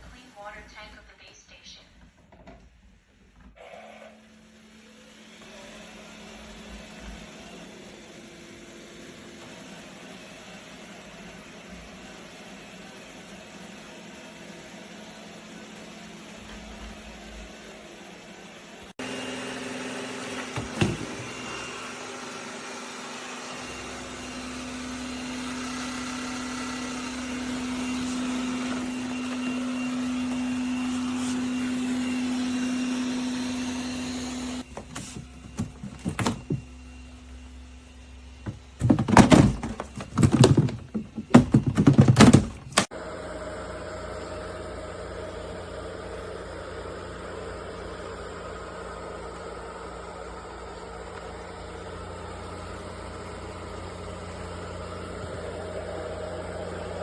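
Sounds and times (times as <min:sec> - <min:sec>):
robot vacuum motor hum: 0:03.5 - 0:57.0
loud knocks and rattles: 0:34.7 - 0:36.7, 0:38.4 - 0:42.9.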